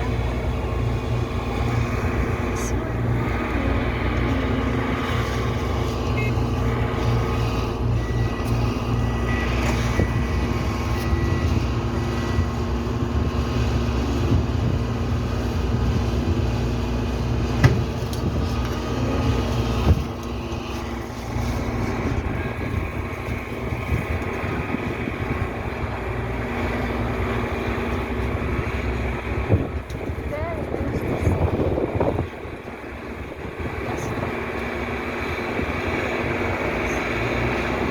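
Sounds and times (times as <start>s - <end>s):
heavy truck engine rumble: 0.0s - 37.9s
reversing alarm beeps: 6.1s - 12.6s.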